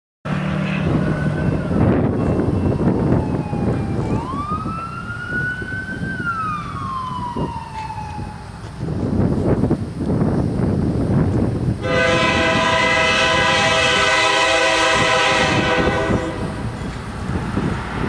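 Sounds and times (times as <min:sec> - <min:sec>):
emergency siren wailing: 0:00.3 - 0:09.0, 0:11.8 - 0:16.7
traffic or wind rumble: 0:00.3 - 0:18.0.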